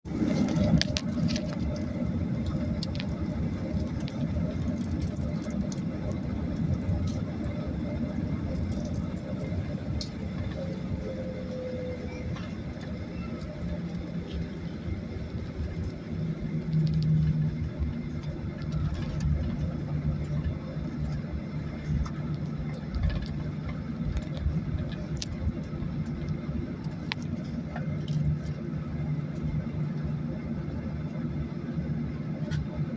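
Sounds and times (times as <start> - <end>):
jet engine cabin rumble: 0.1 - 32.9
low hum: 0.1 - 32.9.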